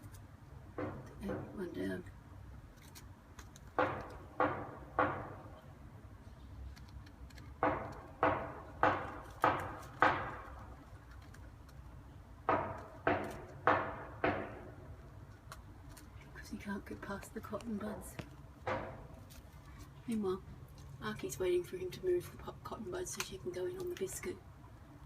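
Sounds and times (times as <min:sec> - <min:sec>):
hollow knocking: 0:00.7 - 0:01.9, 0:03.6 - 0:05.6, 0:07.5 - 0:10.8, 0:12.4 - 0:15.0, 0:17.9 - 0:19.4.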